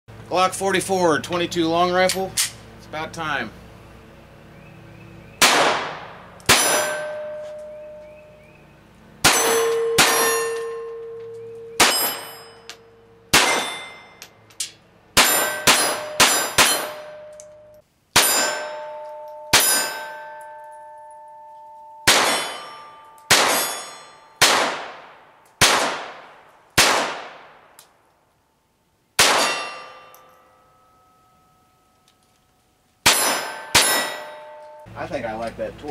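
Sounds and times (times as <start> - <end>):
pistol shots: 5.4 - 7.2, 11.8 - 12.4, 13.3 - 14.0, 15.2 - 17.1, 22.1 - 27.7, 29.2 - 30.0, 33.0 - 34.2
steel target clanging: 5.4 - 8.2, 9.2 - 14.5, 15.2 - 24.5, 29.2 - 32.0, 33.0 - 35.4.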